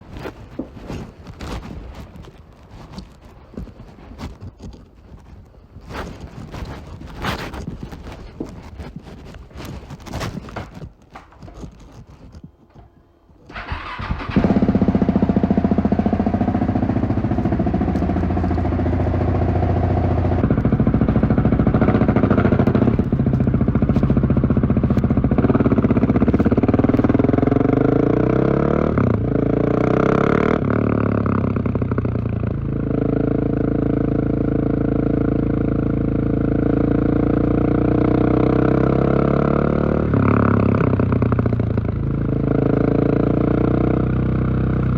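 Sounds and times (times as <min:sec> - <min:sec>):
motorcycle engine starting and idling: 0:12.7 - 0:44.9
engine revs: 0:13.5 - 0:44.9.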